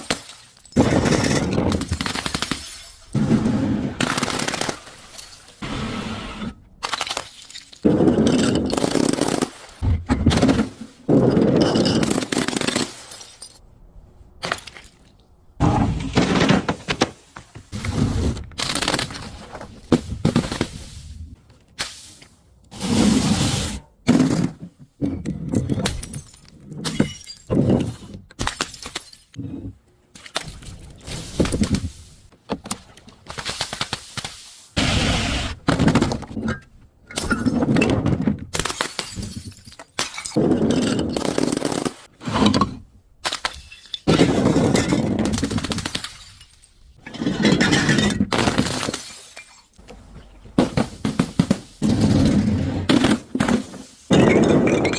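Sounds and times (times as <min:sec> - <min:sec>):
objects crunching and breaking: 0:06.8 - 0:13.3.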